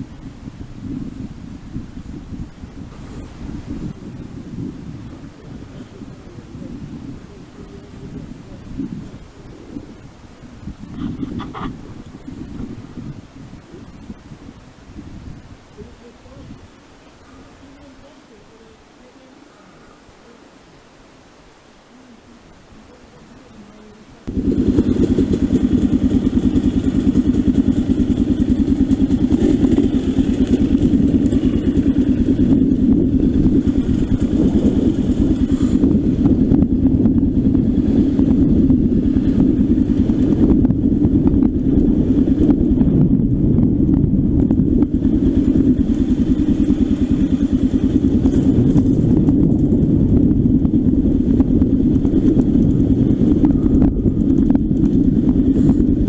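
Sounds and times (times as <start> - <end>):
motorcycle engine running: 24.3 - 56.0.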